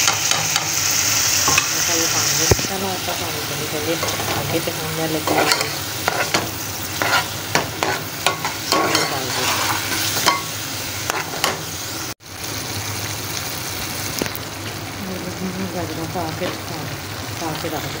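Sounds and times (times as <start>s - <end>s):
onions sizzling in oil: 0.0s - 18.0s
metal spoon scraping pot: 5.2s - 10.5s.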